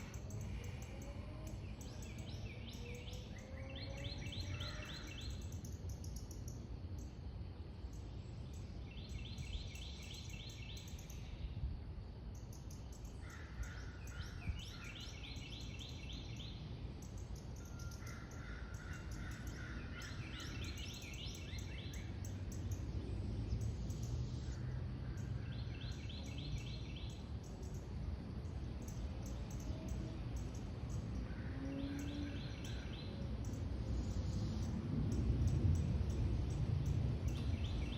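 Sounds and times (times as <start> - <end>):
songbirds trilling: 0.0 - 11.6, 12.4 - 37.9
low background rumble: 11.0 - 37.9.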